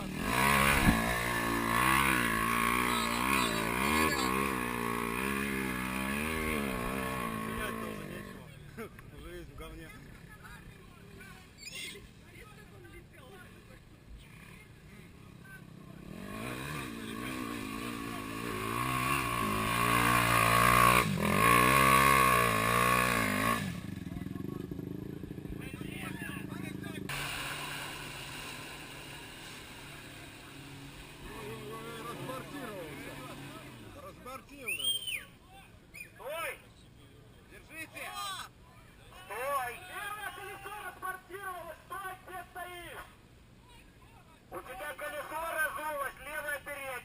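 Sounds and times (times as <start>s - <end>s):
off-road vehicle engine revving: 0.0s - 8.5s, 15.7s - 34.9s.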